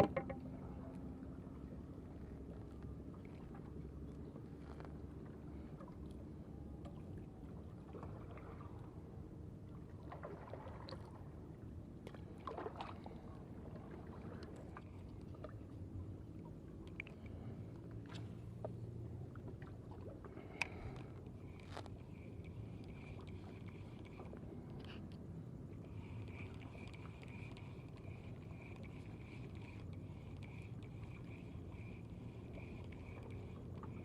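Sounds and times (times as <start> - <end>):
faint low outdoor rumble: 0.0 - 34.0.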